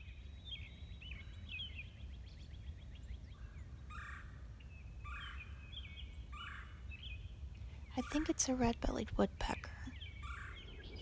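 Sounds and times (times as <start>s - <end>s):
small birds chirping: 5.1s - 11.0s.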